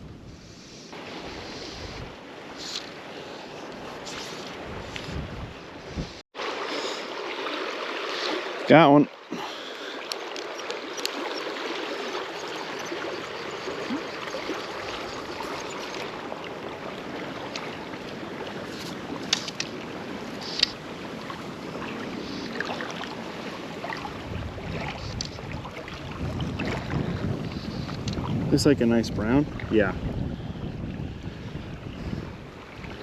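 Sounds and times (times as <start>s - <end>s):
river water rushing: 6.4s - 27.0s.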